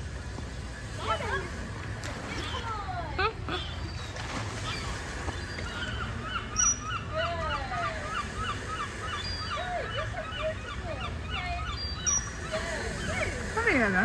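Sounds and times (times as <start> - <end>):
birds chirping: 0.0 - 14.0
falling bird calls: 3.5 - 13.6.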